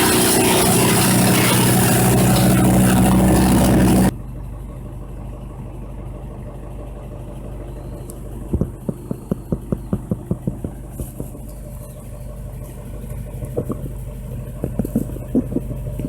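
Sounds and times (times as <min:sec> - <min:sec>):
wood chipper shredding: 0:00.0 - 0:04.1
rapid even knocks: 0:08.5 - 0:11.4, 0:13.5 - 0:16.0.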